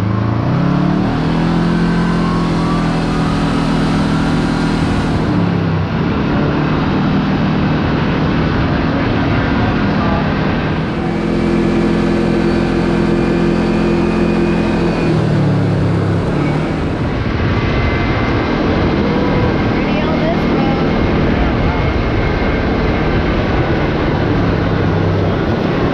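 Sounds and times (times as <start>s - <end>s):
steady rushing noise: 0.0s - 25.9s
utility vehicle engine revving: 0.0s - 25.9s.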